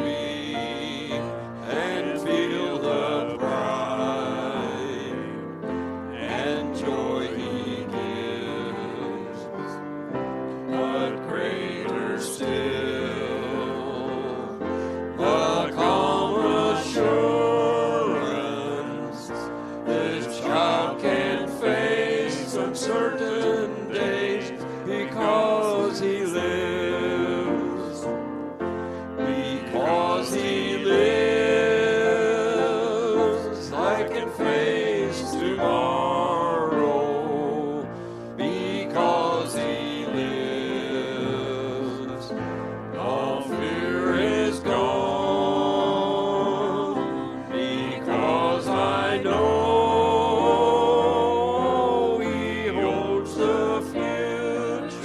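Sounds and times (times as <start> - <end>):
keyboard accompaniment: 0.0 - 55.0.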